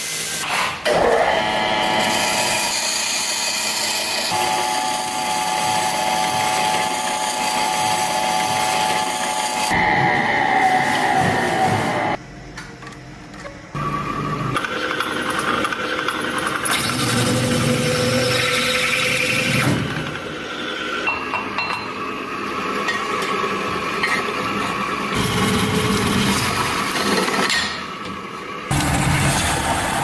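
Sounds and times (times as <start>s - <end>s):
power tool scraping material: 0.0s - 12.2s.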